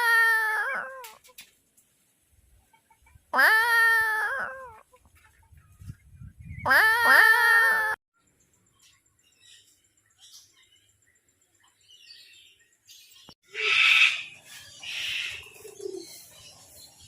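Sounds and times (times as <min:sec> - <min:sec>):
loud harsh bird calls: 0:13.5 - 0:16.0.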